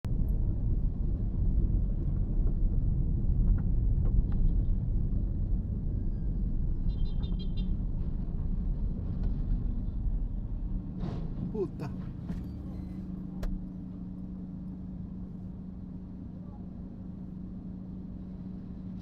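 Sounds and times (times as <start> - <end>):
road traffic rumble: 8.8 - 16.2.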